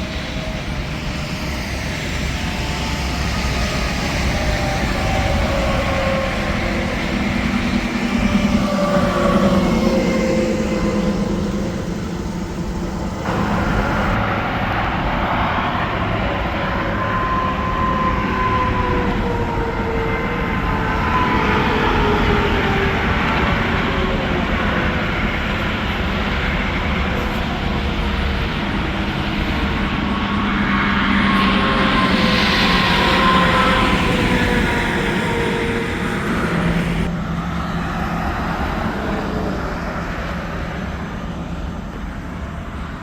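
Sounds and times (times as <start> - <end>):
traffic roar of tyres and engines: 0.0 - 43.0
passing vehicle whines: 2.0 - 19.0, 28.1 - 41.3.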